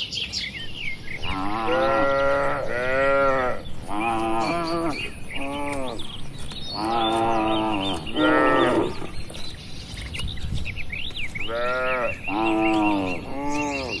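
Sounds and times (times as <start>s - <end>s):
cattle mooing: 1.2s - 6.2s, 6.8s - 9.2s, 11.5s - 14.0s.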